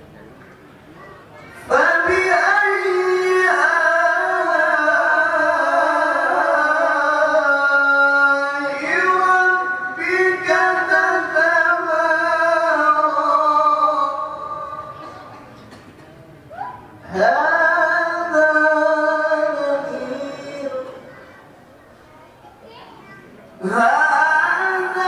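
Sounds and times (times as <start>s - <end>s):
solo voice chanting recitation: 1.4s - 15.4s, 17.0s - 21.4s, 23.6s - 25.0s.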